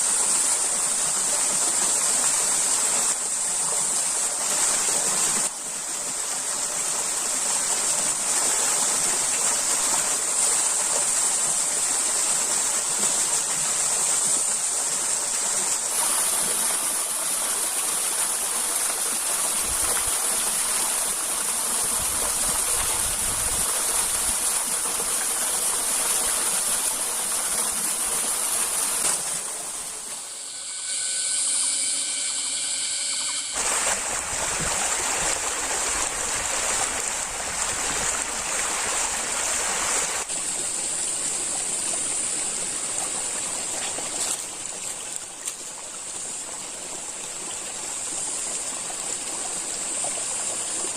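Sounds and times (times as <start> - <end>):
stream water rushing: 0.0 - 50.9
steady high tones: 26.8 - 34.3.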